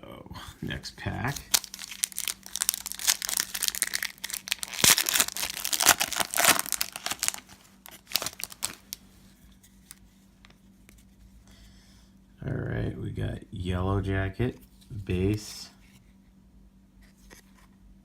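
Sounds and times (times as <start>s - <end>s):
card pack wrapper tearing and crinkling: 1.3s - 9.0s.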